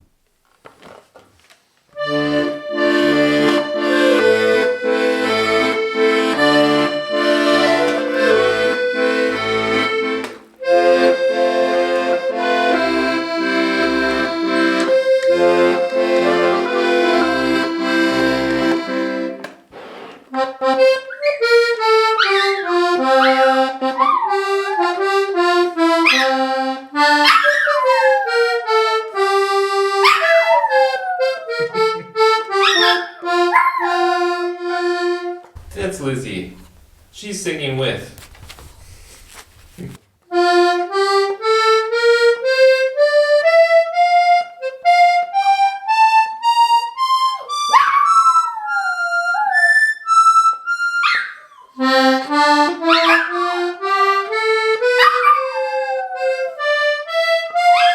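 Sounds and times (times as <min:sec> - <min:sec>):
accordion playing a tune: 0:02.0 - 0:36.5, 0:40.3 - 0:57.9
dog howling: 0:22.1 - 0:25.2, 0:26.0 - 0:26.5, 0:27.2 - 0:28.9, 0:30.0 - 0:31.8, 0:32.6 - 0:34.2, 0:47.3 - 0:51.8, 0:52.9 - 0:53.7, 0:54.9 - 0:56.6.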